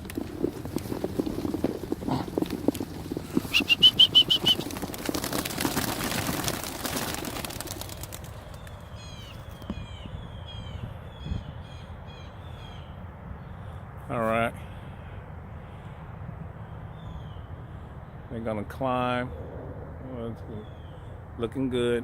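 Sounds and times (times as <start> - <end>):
pigeons wings flapping: 0.0 - 9.7
faint bird calls: 3.3 - 4.8.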